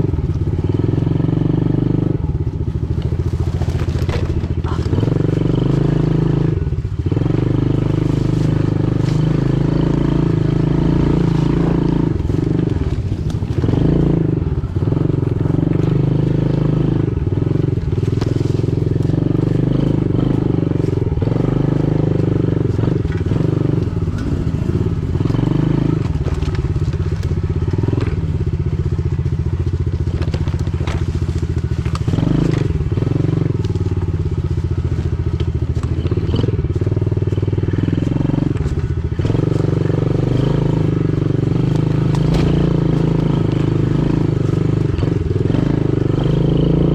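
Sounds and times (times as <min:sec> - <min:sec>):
pit bike engine running: 0:00.0 - 0:46.9
knocks and clatter: 0:29.7 - 0:33.0.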